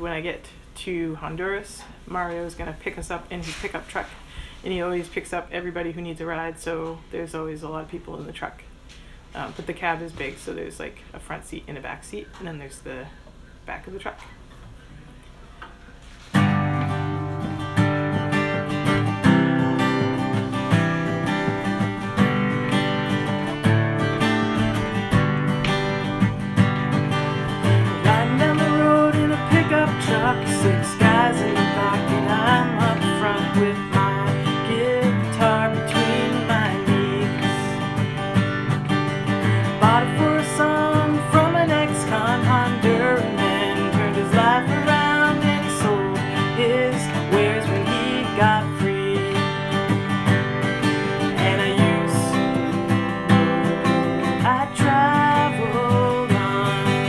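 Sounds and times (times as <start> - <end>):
acoustic guitar strummed and picked: 16.0 - 57.0.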